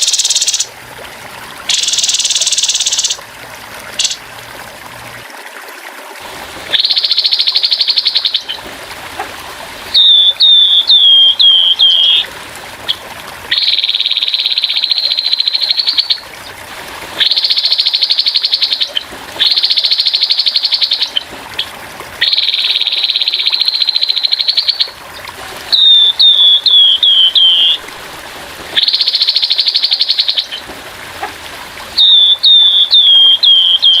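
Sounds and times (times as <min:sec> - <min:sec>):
bird harsh rattling trills: 0:00.0 - 0:00.7, 0:01.7 - 0:03.2
faint trickle of water: 0:00.0 - 0:34.0.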